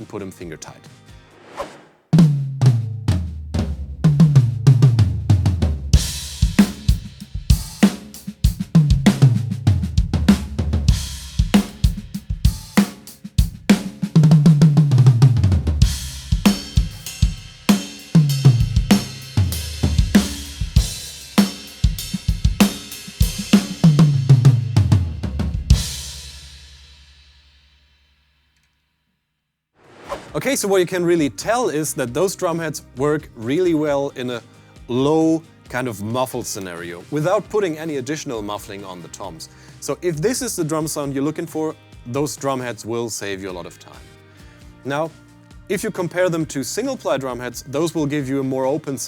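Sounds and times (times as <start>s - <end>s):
muffled tom drum fills: 2.2s - 27.4s
kick snare and cymbal beat: 2.2s - 28.1s
cymbal crash ringing: 6.0s - 7.9s, 15.8s - 24.7s, 25.7s - 27.9s.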